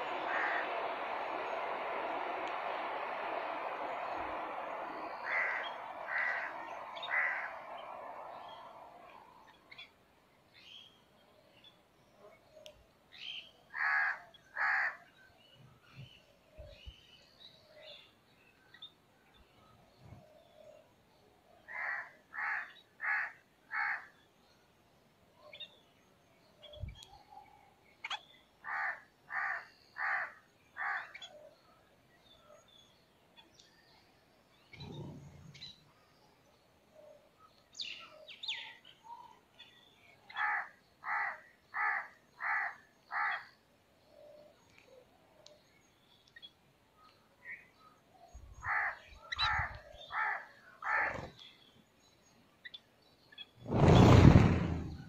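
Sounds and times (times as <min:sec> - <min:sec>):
faint chirps of other birds: 0:04.8 - 0:55.0.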